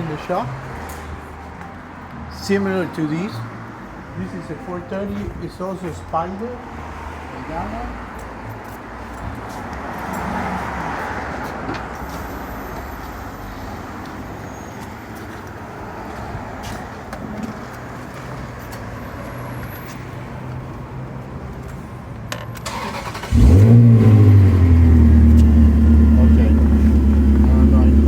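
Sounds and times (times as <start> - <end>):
car engine starting and idling: 22.3 - 28.0.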